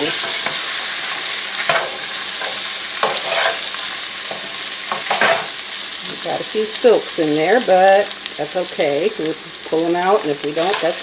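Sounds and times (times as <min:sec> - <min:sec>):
spatula scraping pan: 0:00.0 - 0:05.6
corn sizzling in grease: 0:00.0 - 0:11.0.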